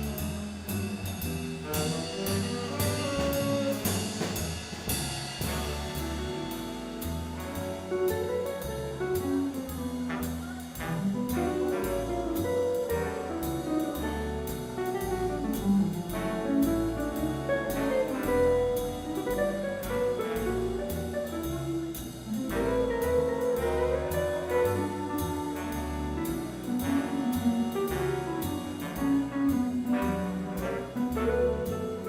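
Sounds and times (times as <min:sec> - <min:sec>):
drums with steady cymbal beat: 0:00.0 - 0:32.0
walking upright bass: 0:00.0 - 0:32.0
horn solo: 0:01.6 - 0:04.4, 0:10.0 - 0:13.6, 0:22.5 - 0:32.0.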